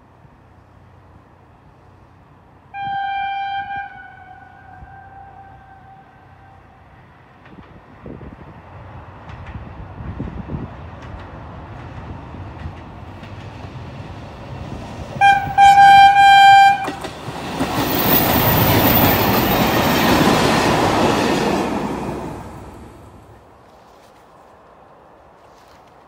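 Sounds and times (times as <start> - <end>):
train engine and wheels rumbling: 0.0 - 26.0
train horn blasts: 2.7 - 7.0, 15.2 - 17.1.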